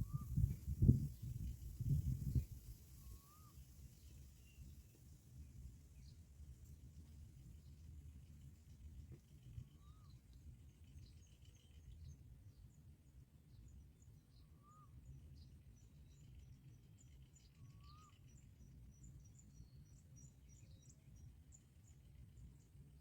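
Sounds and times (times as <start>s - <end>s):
bird chirps: 0.0s - 4.8s, 9.4s - 12.8s, 13.6s - 21.6s
faint outdoor rumble: 0.0s - 23.0s.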